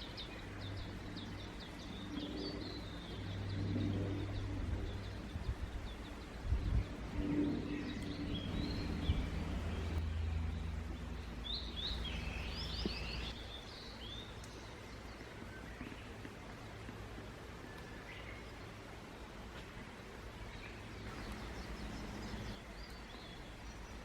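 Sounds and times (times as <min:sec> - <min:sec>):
low steady rumble: 0:00.0 - 0:13.5
small birds chirping: 0:00.0 - 0:24.0.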